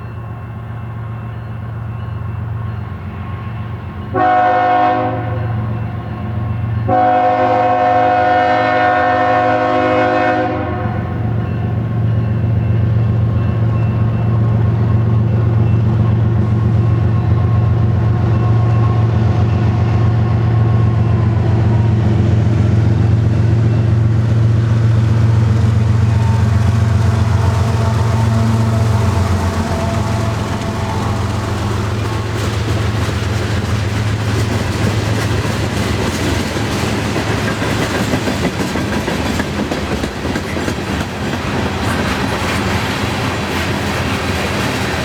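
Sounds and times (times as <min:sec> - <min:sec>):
locomotive engine droning: 0:00.0 - 0:45.0
train wheel and rail noise: 0:00.0 - 0:45.0
locomotive horn: 0:04.1 - 0:05.8, 0:06.8 - 0:11.4, 0:25.1 - 0:33.3.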